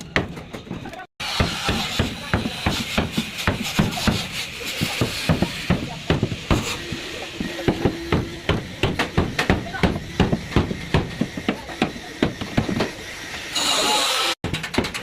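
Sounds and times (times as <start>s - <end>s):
hammer blows on sheet metal: 1.2s - 13.0s.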